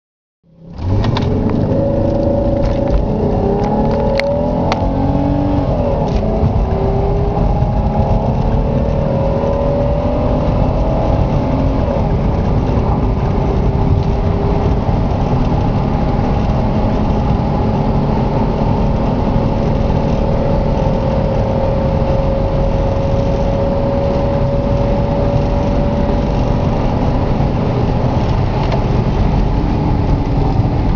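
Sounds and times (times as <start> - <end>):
car engine accelerating: 0.5 - 30.9
low rumble: 0.5 - 30.9.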